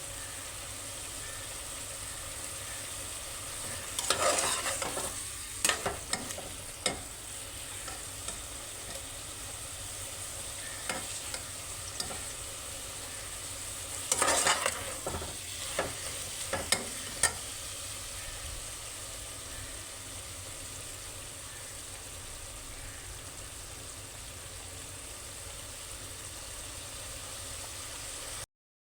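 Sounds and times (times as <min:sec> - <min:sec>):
gourd sizzling in a pan: 0:00.0 - 0:28.5
spoon scraping a pan: 0:02.7 - 0:18.4
spoon clinking: 0:03.7 - 0:07.1, 0:10.6 - 0:12.4, 0:14.1 - 0:17.4.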